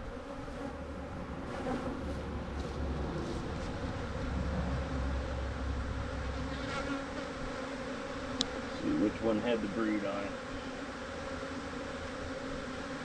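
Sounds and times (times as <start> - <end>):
bees buzzing: 0.0 - 13.0
low rumble: 1.0 - 6.7.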